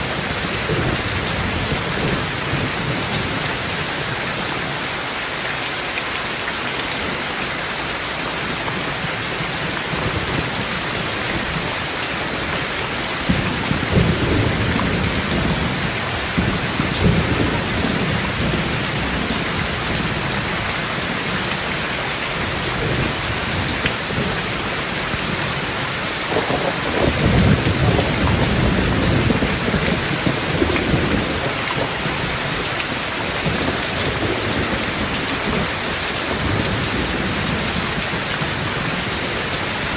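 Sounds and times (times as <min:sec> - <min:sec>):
heavy rain: 0:00.0 - 0:39.9
rolling thunder: 0:13.2 - 0:21.1, 0:26.2 - 0:39.1.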